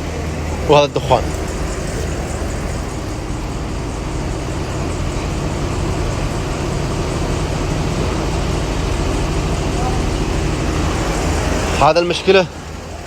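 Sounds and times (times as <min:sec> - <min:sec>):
car engine running rough: 0:00.0 - 0:13.0.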